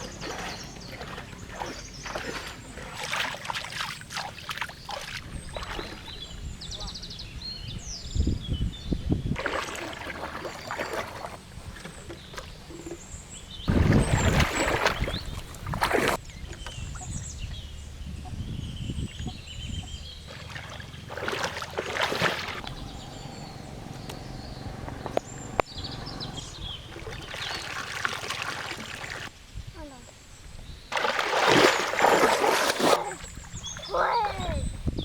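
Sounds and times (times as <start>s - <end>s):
water splashing and sloshing: 0.0s - 6.6s, 9.3s - 17.6s, 19.2s - 29.3s, 30.9s - 34.7s
birds chirping: 0.0s - 32.3s, 32.9s - 35.0s.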